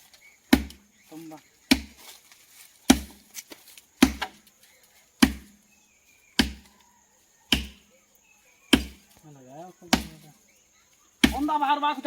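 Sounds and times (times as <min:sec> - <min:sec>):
heavy chopping blows: 0:01.7 - 0:02.0, 0:04.0 - 0:04.4, 0:05.2 - 0:05.6, 0:06.4 - 0:06.7, 0:07.5 - 0:07.8, 0:11.2 - 0:11.5.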